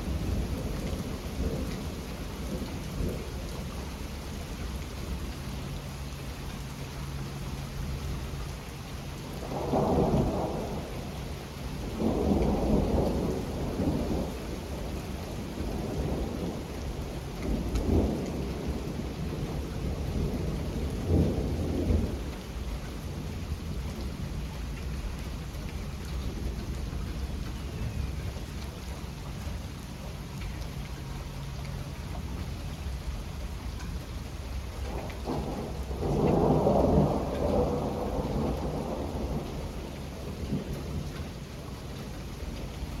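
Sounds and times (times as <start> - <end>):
steady rain falling: 0.0 - 43.0
rolling thunder: 9.2 - 25.1, 34.4 - 43.0.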